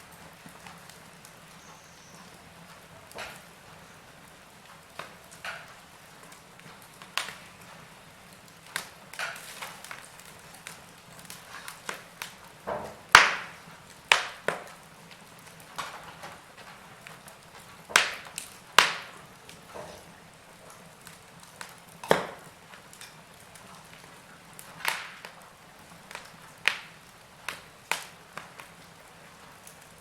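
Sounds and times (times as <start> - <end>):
burning logs crackling: 0.0 - 30.0
faint steady hiss: 0.0 - 30.0.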